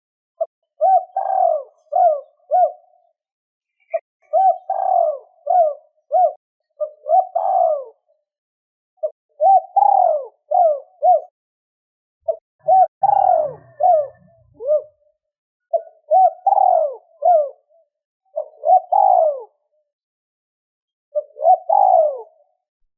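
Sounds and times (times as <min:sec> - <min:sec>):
dove cooing: 0:00.7 - 0:03.1, 0:03.8 - 0:08.2, 0:09.0 - 0:11.4, 0:12.2 - 0:19.6, 0:21.1 - 0:22.6.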